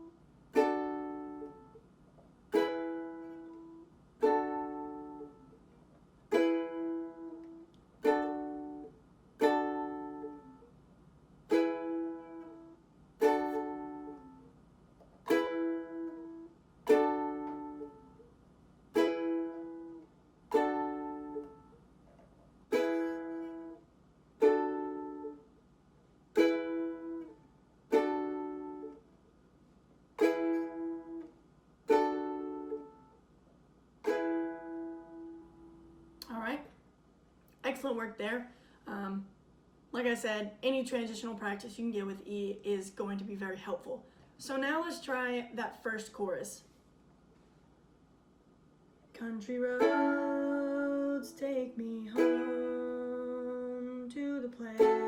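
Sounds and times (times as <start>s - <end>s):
ukulele strumming chords: 0.0s - 1.9s, 2.5s - 5.6s, 6.3s - 10.7s, 11.4s - 18.3s, 18.9s - 21.9s, 22.7s - 25.5s, 26.3s - 29.1s, 30.2s - 33.2s, 34.0s - 36.3s, 49.2s - 55.0s.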